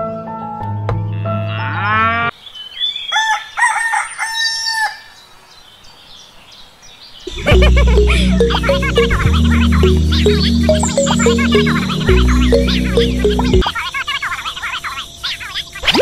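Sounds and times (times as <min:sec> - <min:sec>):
rooster crowing: 0:03.1 - 0:05.1
music: 0:07.3 - 0:13.6.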